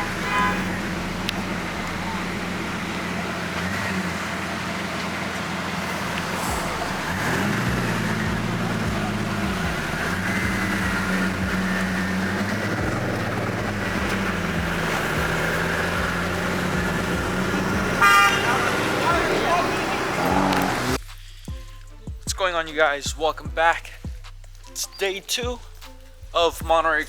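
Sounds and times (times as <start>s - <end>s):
car engine running: 0.0s - 21.2s.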